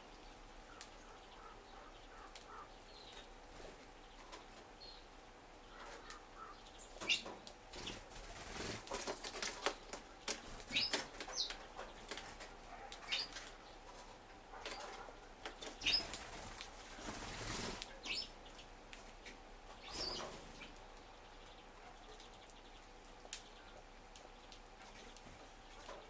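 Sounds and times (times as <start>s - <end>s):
beaks pecking on wood: 0.7s - 4.7s, 5.7s - 26.0s
bird wings fluttering: 7.8s - 12.6s, 15.7s - 18.0s.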